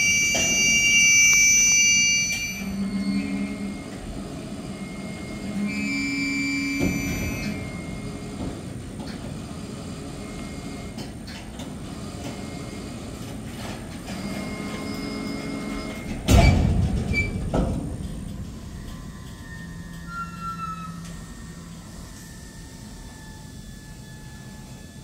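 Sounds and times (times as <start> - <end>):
train wheels rumbling: 15.8 - 25.0.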